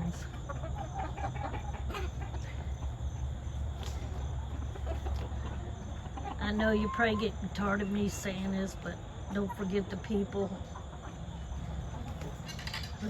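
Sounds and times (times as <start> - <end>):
steady low rumble: 0.0 - 6.5
chickens clucking: 0.0 - 13.0.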